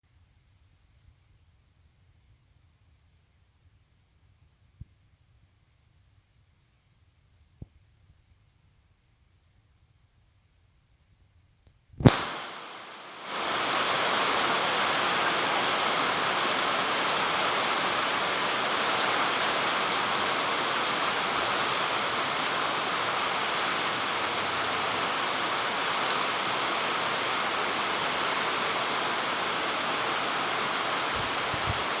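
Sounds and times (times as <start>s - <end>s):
heavy rain falling: 12.0s - 32.0s.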